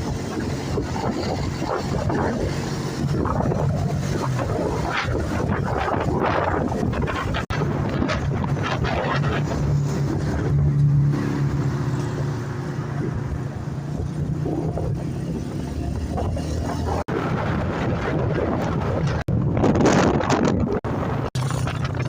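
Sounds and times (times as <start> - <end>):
wind on microphone: 0.0 - 22.0
motorcycle engine running: 13.1 - 22.0.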